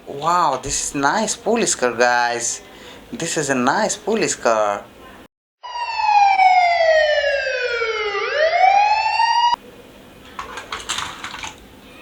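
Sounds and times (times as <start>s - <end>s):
toy police car siren wailing: 5.6s - 9.6s.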